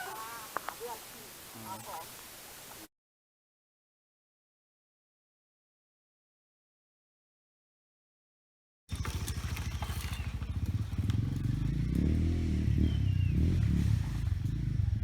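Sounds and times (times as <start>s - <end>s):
small engine running: 8.9s - 15.0s.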